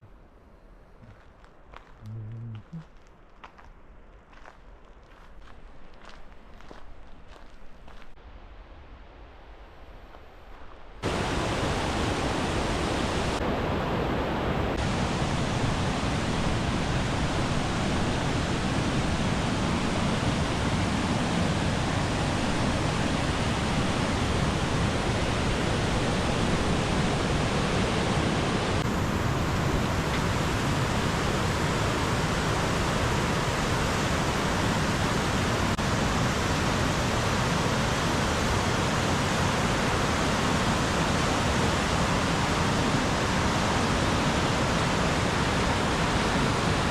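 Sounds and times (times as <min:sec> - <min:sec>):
waterfall roaring: 0:11.0 - 0:46.9.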